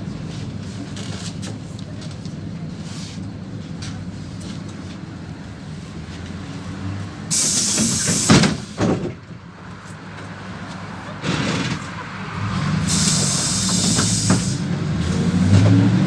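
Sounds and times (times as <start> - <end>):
bus engine running: 0.0 - 16.0
compressed air hiss: 7.3 - 8.8, 12.8 - 14.6
bus doors thudding: 7.3 - 9.4, 11.2 - 12.0, 12.8 - 14.7.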